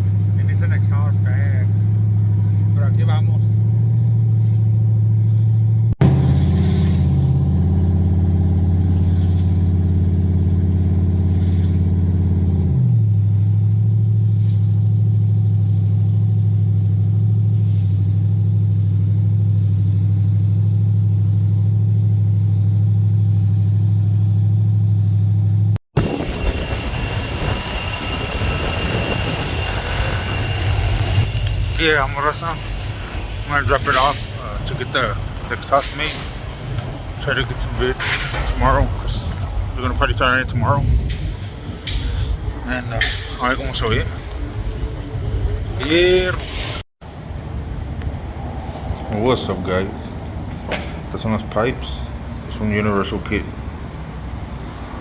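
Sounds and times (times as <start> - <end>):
vehicle engine idling: 0.0 - 46.3, 47.0 - 55.0
noisy rushing sound: 26.0 - 55.0.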